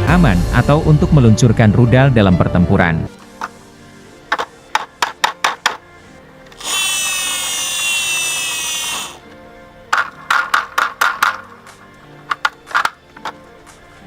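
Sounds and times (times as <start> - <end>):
faint background music: 0.0 - 14.0
small motor whirring: 6.6 - 9.2.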